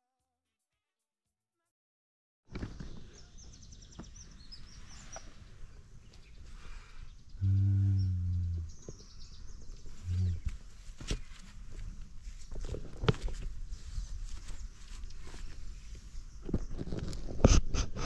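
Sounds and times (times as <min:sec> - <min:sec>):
birds chirping: 0:02.6 - 0:12.1
deep low bird call: 0:07.3 - 0:10.6.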